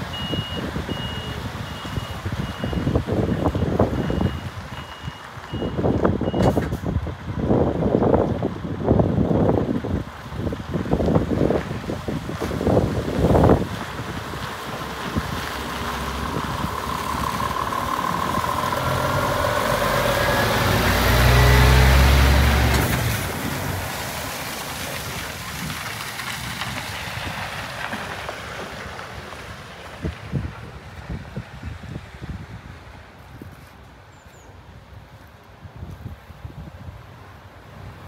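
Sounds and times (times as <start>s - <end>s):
truck diesel engine passing: 8.7s - 31.6s.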